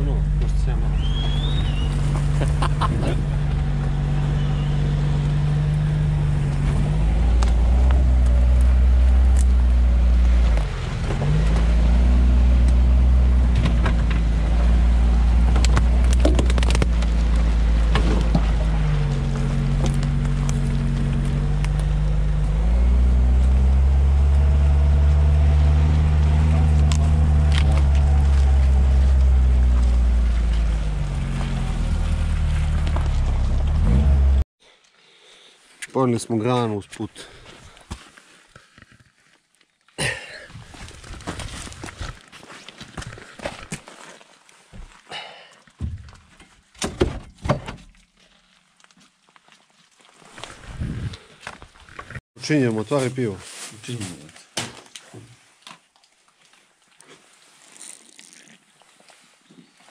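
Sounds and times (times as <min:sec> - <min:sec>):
off-road car engine: 0:00.0 - 0:34.5.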